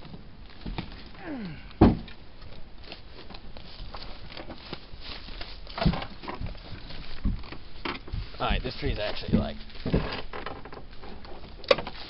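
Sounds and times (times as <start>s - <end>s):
small knocks and rustling: 0.0s - 1.2s, 1.8s - 12.0s
loud sharp thump: 1.8s - 2.1s.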